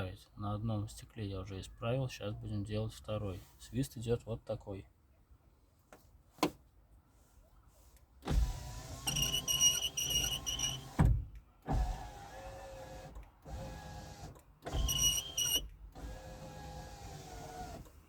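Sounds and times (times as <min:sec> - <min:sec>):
power window motor hum: 0:08.3 - 0:11.1, 0:11.7 - 0:17.9.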